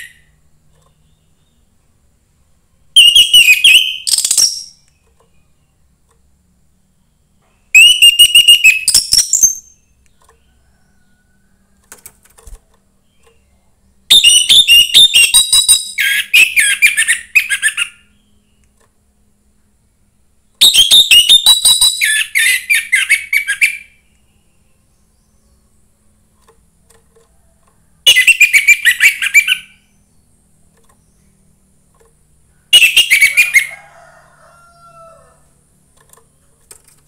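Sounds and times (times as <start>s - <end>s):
thrush singing whistled notes: 3.0s - 5.1s, 7.7s - 10.0s, 14.1s - 18.7s, 20.6s - 25.4s, 28.0s - 30.3s, 32.6s - 33.8s.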